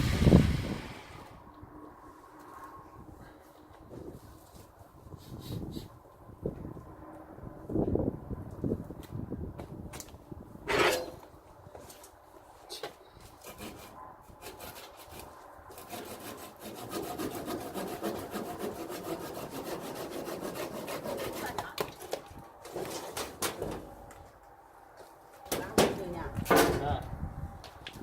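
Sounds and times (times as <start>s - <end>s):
hand saw cutting wood: 13.4s - 23.3s.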